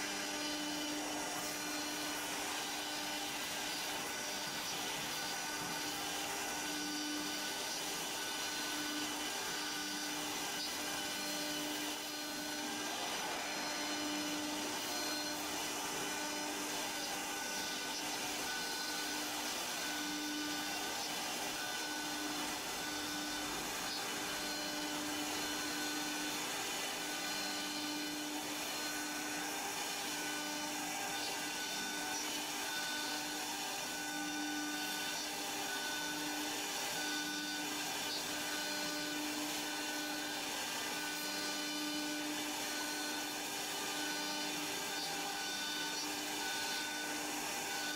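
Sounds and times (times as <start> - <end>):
router motor hum and whine: 0.0 - 47.9
wood cutting noise: 0.0 - 47.9.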